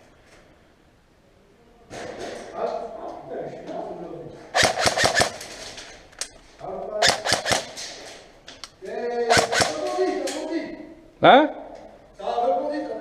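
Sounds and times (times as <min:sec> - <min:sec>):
airsoft gun bursts: 0:04.5 - 0:05.6, 0:07.0 - 0:07.9, 0:09.3 - 0:10.0.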